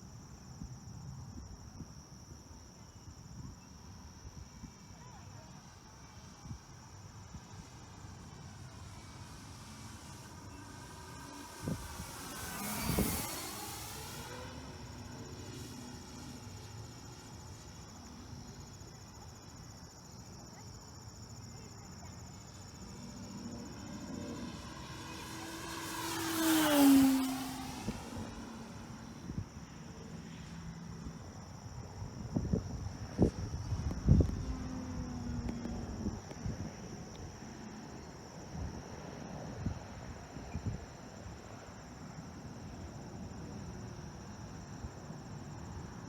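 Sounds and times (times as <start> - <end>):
model plane motor whining: 9.7 - 17.0.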